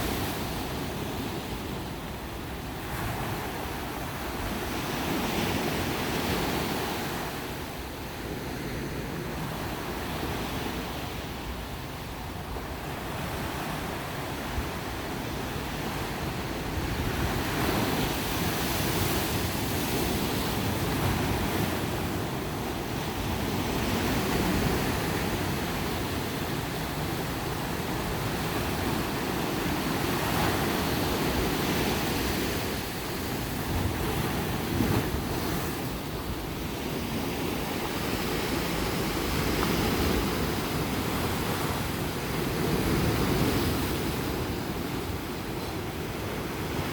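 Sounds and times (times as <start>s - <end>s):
ocean surf breaking on beach: 0.0s - 46.9s
wind on microphone: 11.9s - 46.9s.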